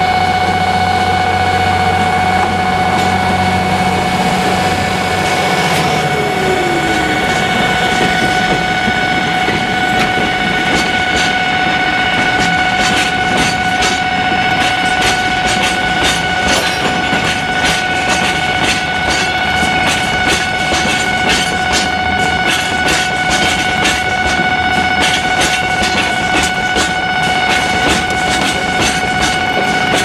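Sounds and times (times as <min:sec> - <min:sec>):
low engine rumble: 0:00.0 - 0:22.9
high-pitched tone: 0:00.0 - 0:28.5
wheels clicking over rail joints: 0:00.2 - 0:30.0.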